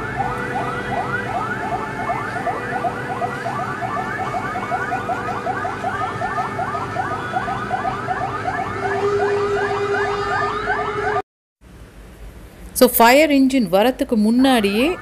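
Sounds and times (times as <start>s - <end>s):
fire engine sirens yelping: 0.0s - 11.2s, 14.3s - 15.0s.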